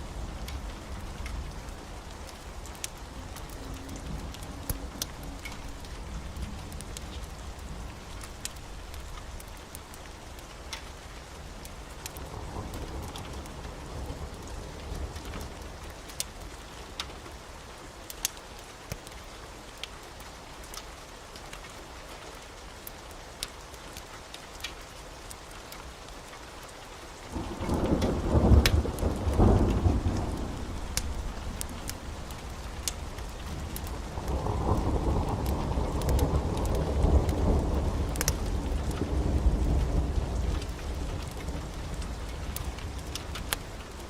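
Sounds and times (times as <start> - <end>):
heavy rain: 0.0 - 44.0
raindrop ticks: 0.0 - 44.0
thunder rumbling: 27.3 - 44.0.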